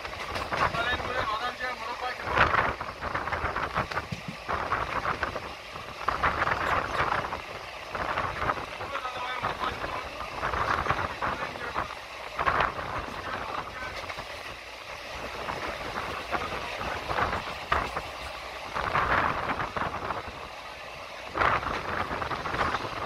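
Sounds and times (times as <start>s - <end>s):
wheels and carriage clacking and rattling: 0.0s - 1.6s, 2.4s - 5.3s, 6.2s - 19.7s
train rumble from on board: 0.0s - 23.0s.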